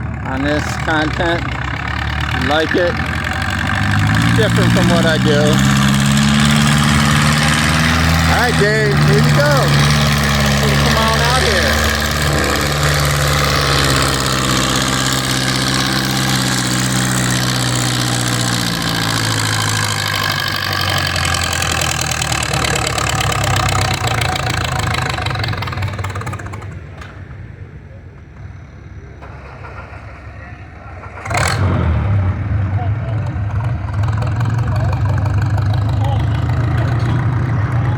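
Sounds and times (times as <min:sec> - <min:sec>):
tractor engine running hard: 0:00.0 - 0:37.9.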